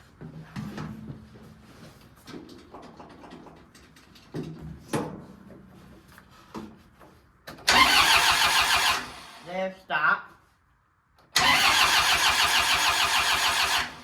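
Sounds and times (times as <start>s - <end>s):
tractor engine cranking: 7.5s - 9.4s, 11.3s - 14.0s.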